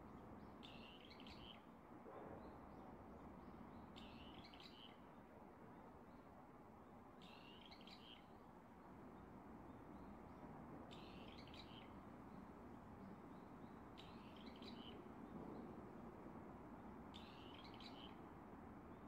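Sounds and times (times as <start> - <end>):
low steady hiss: 0.0 - 19.0
bird chirping: 0.6 - 1.6, 3.4 - 5.0, 7.2 - 8.3, 10.9 - 12.5, 13.3 - 15.0, 17.1 - 18.2.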